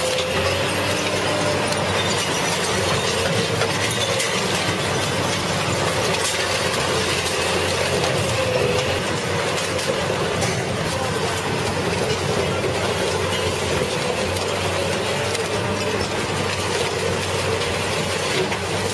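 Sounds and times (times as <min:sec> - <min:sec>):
shredder machine din: 0:00.0 - 0:18.9
metal and glass breaking: 0:01.7 - 0:07.7.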